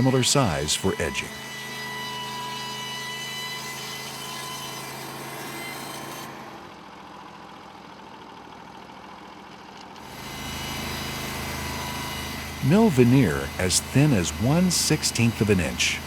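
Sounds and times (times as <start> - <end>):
sawmill gas engine running: 0.0 - 1.6, 10.0 - 16.0.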